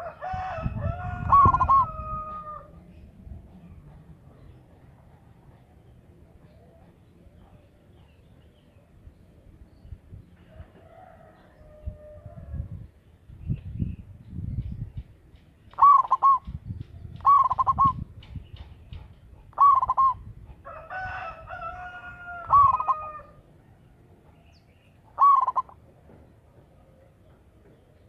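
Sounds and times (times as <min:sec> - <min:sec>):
dove cooing: 0:00.0 - 0:02.8, 0:15.7 - 0:18.1, 0:19.4 - 0:20.3, 0:22.4 - 0:23.4, 0:25.1 - 0:25.8
long held bird call: 0:01.2 - 0:02.8, 0:15.6 - 0:18.3, 0:19.4 - 0:20.3, 0:21.3 - 0:23.5, 0:24.4 - 0:25.9.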